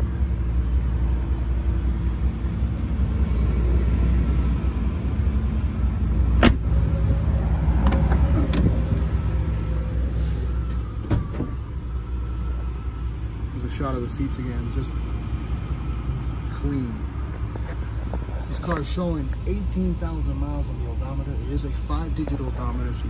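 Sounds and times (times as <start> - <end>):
car engine idling in cabin: 16.5 - 23.0.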